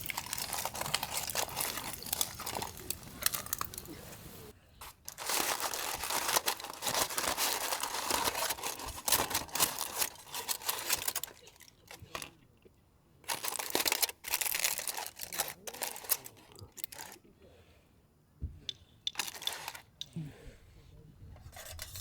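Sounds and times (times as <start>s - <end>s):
bag crinkling and rustling: 0.0s - 12.3s, 13.3s - 17.2s, 19.2s - 19.8s.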